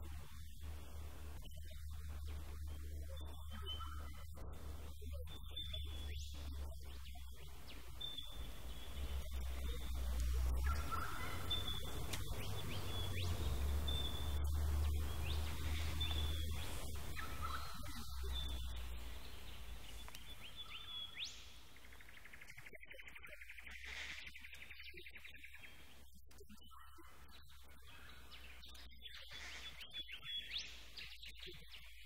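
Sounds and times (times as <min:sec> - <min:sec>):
steady low rumble: 0:00.0 - 0:22.7
birds calling: 0:00.0 - 0:32.0.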